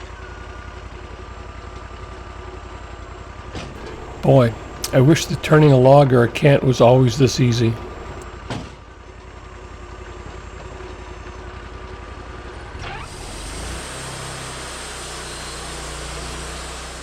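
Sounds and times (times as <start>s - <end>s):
sawmill engine running: 3.8s - 8.2s.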